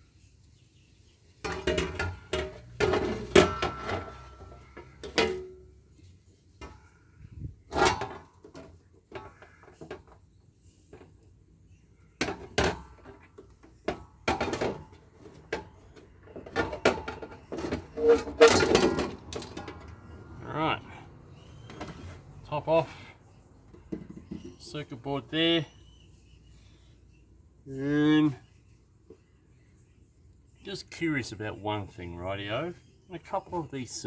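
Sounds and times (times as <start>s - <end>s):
sheet metal clanking and rattling: 16.3s - 20.1s.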